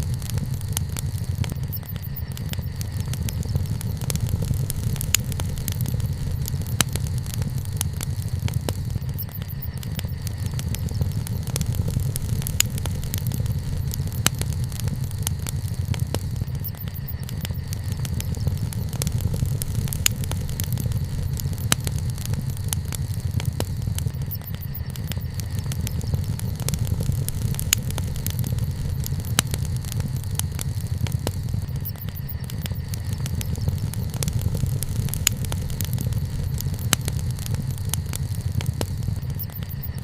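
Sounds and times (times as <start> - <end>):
low rumble: 0.0 - 39.6
fire popping and snapping: 0.0 - 40.0
wood fire crackling: 0.0 - 40.0.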